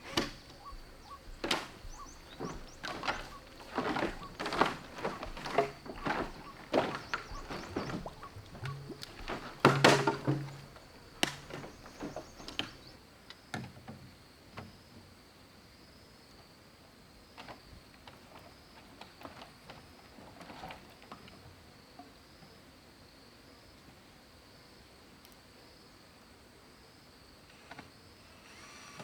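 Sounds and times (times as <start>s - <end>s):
tool chopping bamboo: 2.4s - 12.8s.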